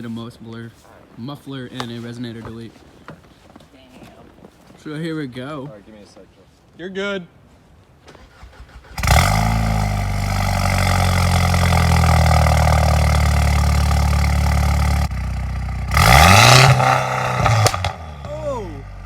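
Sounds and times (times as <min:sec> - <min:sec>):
car engine revving: 0:08.8 - 0:19.0
loud car engine idling: 0:09.0 - 0:19.0.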